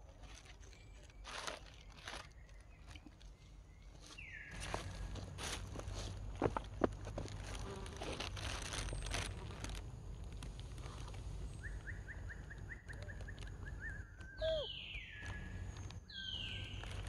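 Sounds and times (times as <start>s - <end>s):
rustling: 0.0s - 13.8s, 15.2s - 17.0s
bird chirping and whistling: 11.6s - 15.4s, 16.1s - 16.7s.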